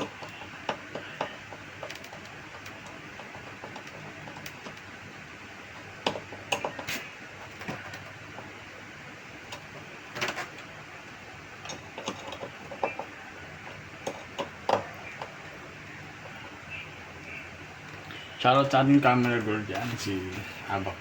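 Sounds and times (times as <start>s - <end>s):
clicks and knocks of plastic parts: 0.0s - 4.9s, 5.8s - 8.6s
faint low hum: 0.0s - 21.0s.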